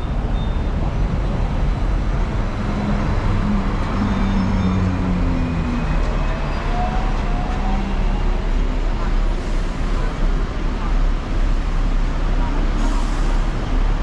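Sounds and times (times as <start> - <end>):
tram rumbling along street: 0.0 - 14.0.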